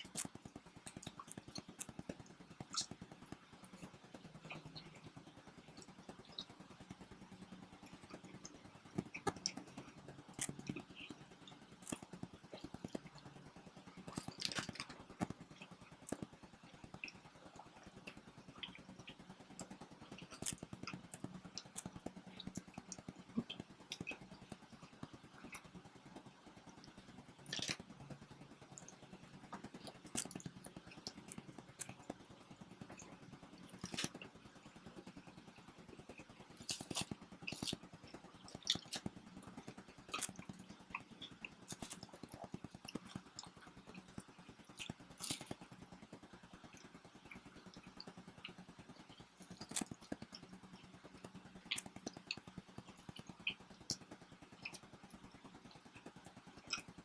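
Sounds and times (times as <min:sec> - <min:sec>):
faint steady hum: 0:00.0 - 0:57.0
people chewing food: 0:00.0 - 0:57.0
small clicks and crackles: 0:00.0 - 0:57.0
crunchy bites: 0:14.1 - 0:15.4, 0:20.2 - 0:21.9, 0:27.5 - 0:27.8, 0:30.0 - 0:31.9, 0:33.8 - 0:34.2, 0:36.6 - 0:37.8, 0:38.6 - 0:39.1, 0:40.1 - 0:40.6, 0:41.7 - 0:42.3, 0:44.8 - 0:45.6.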